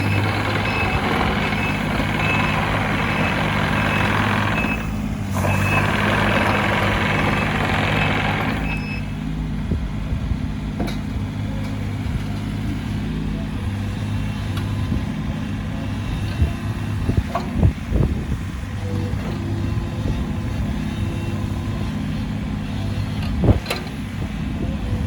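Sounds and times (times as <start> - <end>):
travel alarm beeping: 0.0 - 5.9, 8.6 - 9.1
diesel engine running under load: 0.0 - 25.0.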